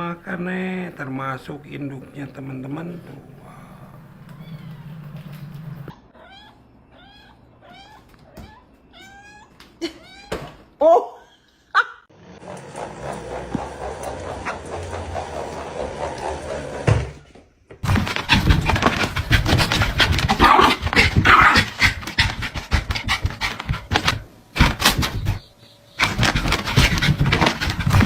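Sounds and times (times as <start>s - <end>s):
dog panting: 17.9s - 25.4s, 26.0s - 28.0s.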